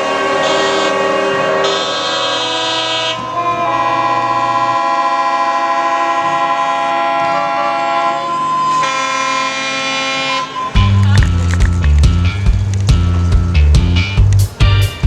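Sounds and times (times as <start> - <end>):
music of sustained chords: 0.0 - 4.9, 10.4 - 15.0.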